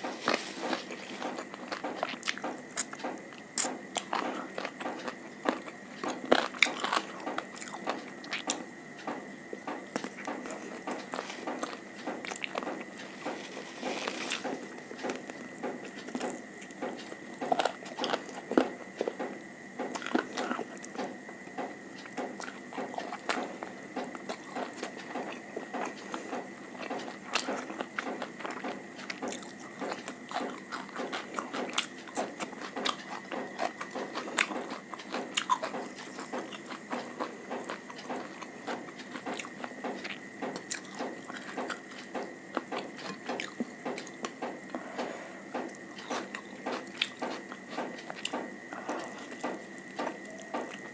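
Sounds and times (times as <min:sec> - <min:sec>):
person chewing food: 0:00.0 - 0:50.9
faint steady high tone: 0:50.1 - 0:50.9.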